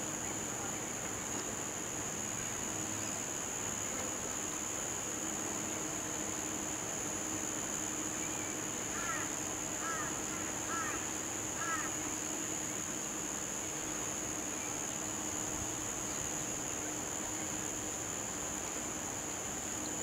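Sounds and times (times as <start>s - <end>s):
insects hissing: 0.0s - 20.0s.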